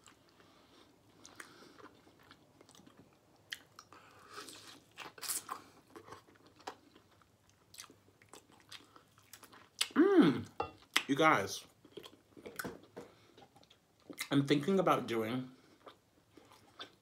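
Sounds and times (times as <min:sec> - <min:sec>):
person chewing meat: 0:00.0 - 0:10.0, 0:11.8 - 0:14.3, 0:15.6 - 0:17.0.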